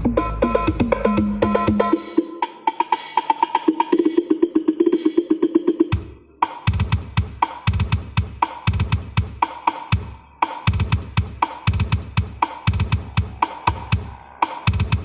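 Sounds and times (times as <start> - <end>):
sharp drum slaps: 6.6 - 15.0
deep bass drum strokes: 10.7 - 15.0.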